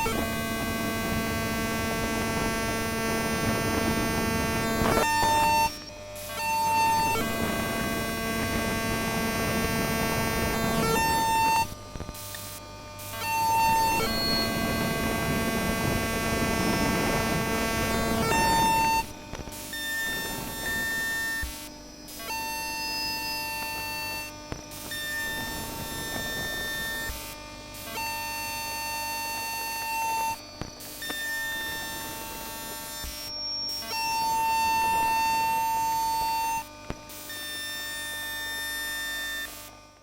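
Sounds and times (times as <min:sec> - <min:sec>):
buzzy electrical noise: 0:00.0 - 0:40.0
electric motor whine: 0:00.0 - 0:40.0.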